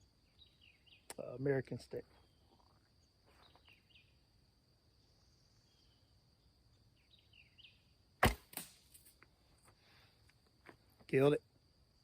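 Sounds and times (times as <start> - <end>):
bird chirps: 0.0 - 1.2, 2.1 - 4.2, 5.0 - 8.0
high insect trill: 0.0 - 12.0
arrow striking a stump: 8.2 - 9.2.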